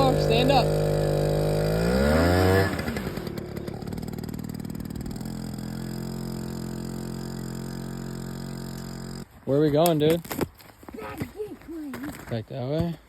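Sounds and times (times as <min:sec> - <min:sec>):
dirt bike engine revving: 0:00.0 - 0:09.5.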